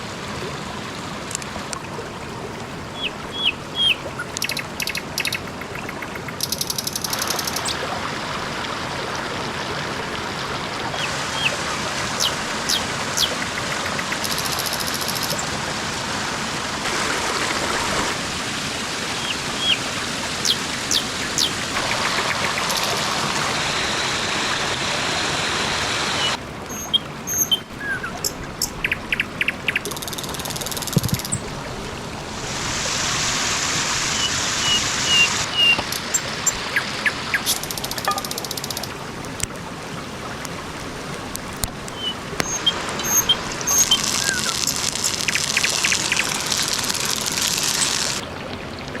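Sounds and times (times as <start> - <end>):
rushing water-like noise: 0.0 - 49.0
small birds chirping: 3.0 - 7.8, 20.4 - 23.2, 41.9 - 48.2
sharp clicks: 5.2 - 7.6, 13.3 - 15.4, 29.9 - 31.4.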